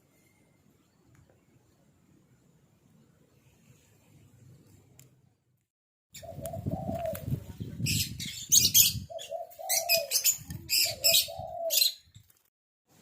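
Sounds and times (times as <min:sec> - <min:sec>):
pigeon cooing: 0:06.2 - 0:12.0.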